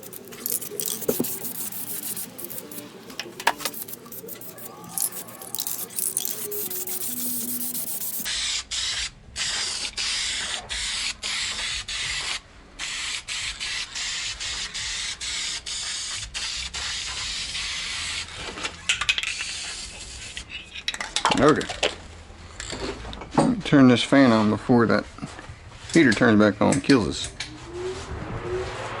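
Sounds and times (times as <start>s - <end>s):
aerosol spray can hissing: 0.0s - 2.9s, 3.5s - 8.9s.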